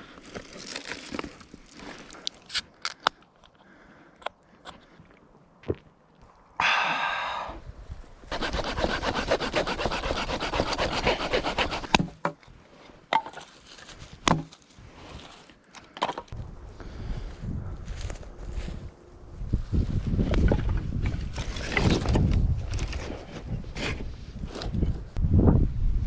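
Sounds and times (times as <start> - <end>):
short scrape: 8.3 - 12.0
hand saw cutting wood: 8.3 - 12.1.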